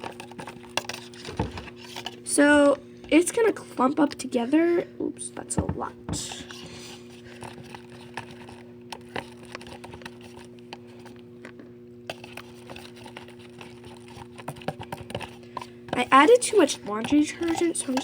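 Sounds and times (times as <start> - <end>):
steady low hum: 0.0 - 18.0
slime squelching: 5.4 - 11.2, 12.1 - 18.0.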